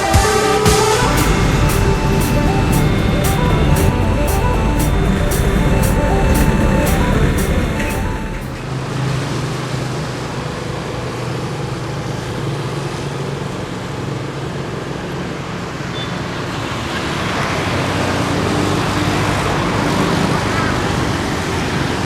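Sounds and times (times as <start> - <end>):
vehicle engines humming: 0.0 - 11.0
continuous noise: 0.0 - 22.0.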